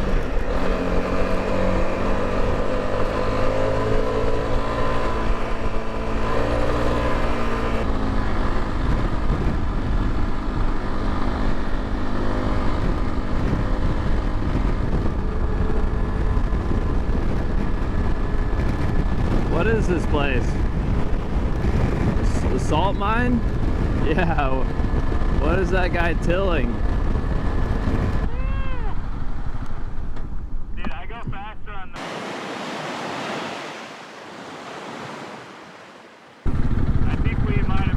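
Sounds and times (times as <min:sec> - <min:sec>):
road and wind noise: 0:00.0 - 0:37.9
motorcycle engine running: 0:36.4 - 0:37.9.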